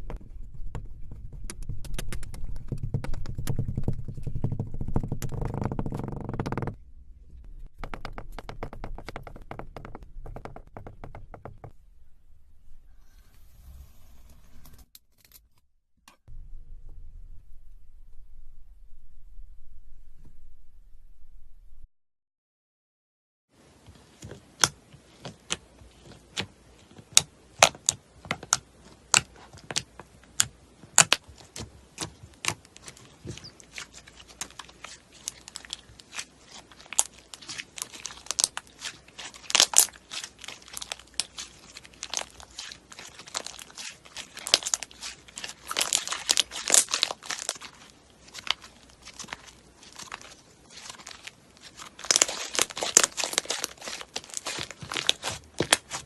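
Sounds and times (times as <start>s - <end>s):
slime popping and crackling: 27.1s - 56.0s.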